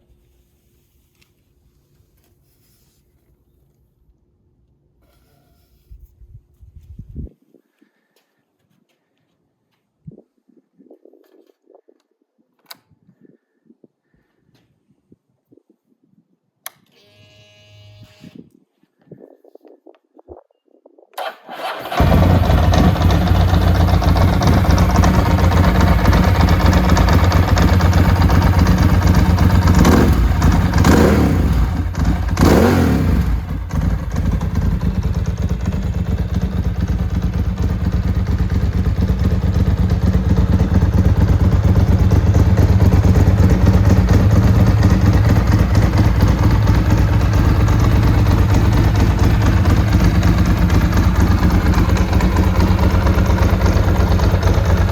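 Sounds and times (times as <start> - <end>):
motorcycle engine starting and revving: 21.2 - 54.9.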